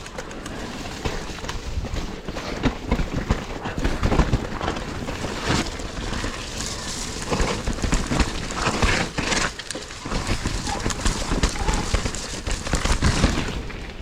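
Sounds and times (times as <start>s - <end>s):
bike chain and frame rattling: 0.0s - 14.0s
tyres squelching through mud: 5.2s - 13.7s.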